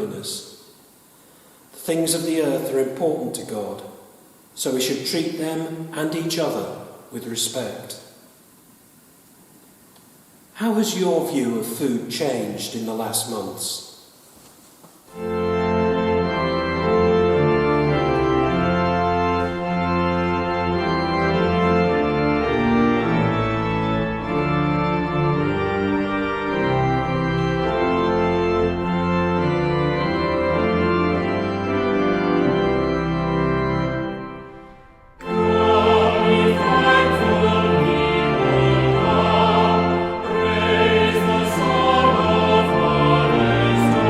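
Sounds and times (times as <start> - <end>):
organ playing hymn chords: 0.0 - 7.7, 15.1 - 44.0
voices singing hymn: 35.2 - 44.0.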